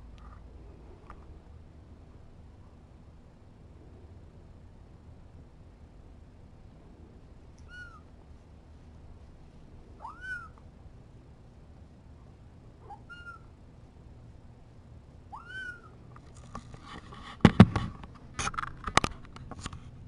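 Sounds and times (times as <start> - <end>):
kitten mewing: 10.0 - 10.6
sharp clicks and knocks: 16.2 - 19.8.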